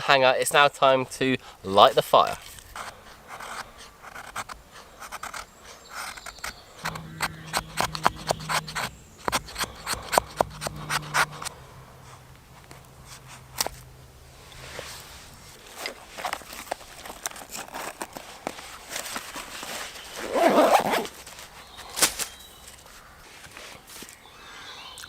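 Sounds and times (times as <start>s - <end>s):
faint low hum: 6.6s - 16.2s.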